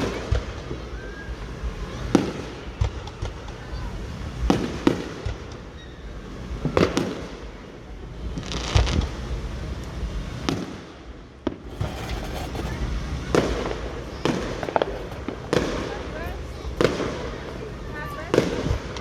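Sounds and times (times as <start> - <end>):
fireworks bangs: 11.5 - 19.0.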